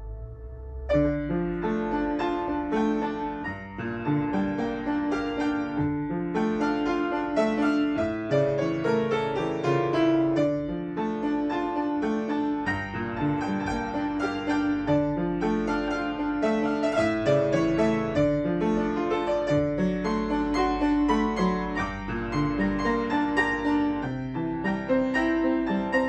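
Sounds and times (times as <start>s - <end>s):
solo piano melody: 0.0s - 26.0s.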